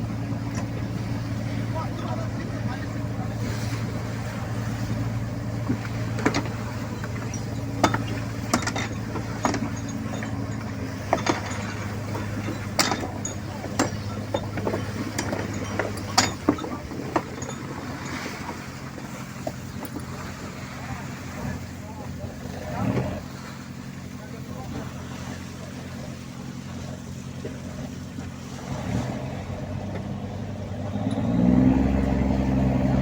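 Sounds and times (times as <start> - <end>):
boat engine running: 0.0 - 33.0
metallic clinks and knocks: 5.7 - 20.1.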